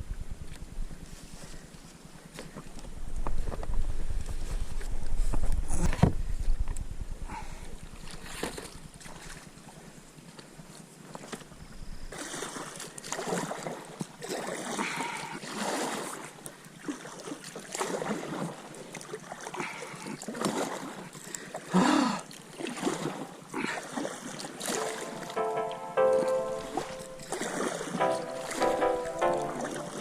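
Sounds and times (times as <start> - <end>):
paddle strokes splashing water: 8.0 - 21.7, 22.3 - 30.0.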